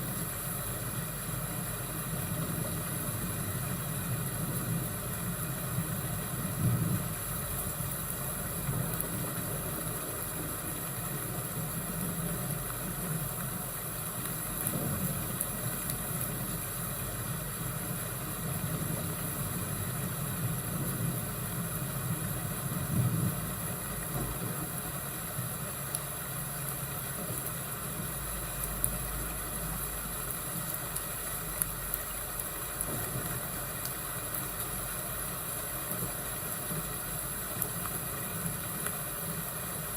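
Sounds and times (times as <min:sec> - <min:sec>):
fire crackling: 0:00.0 - 0:39.9
rain hissing: 0:00.0 - 0:39.9
thunder rumbles: 0:02.2 - 0:13.2, 0:14.5 - 0:16.6, 0:17.2 - 0:24.9.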